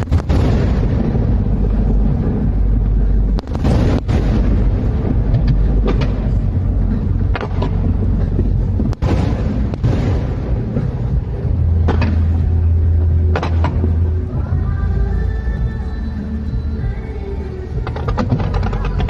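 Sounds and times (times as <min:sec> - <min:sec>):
sharp firework bangs: 0:00.0 - 0:06.5, 0:08.8 - 0:12.6
rumble of firework booms: 0:00.0 - 0:14.7.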